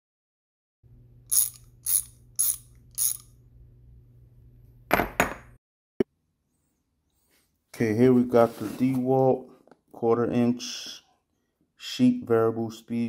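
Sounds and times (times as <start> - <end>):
low steady hum: 0.9 - 4.9
mechanical ratchet clicking: 1.3 - 3.3.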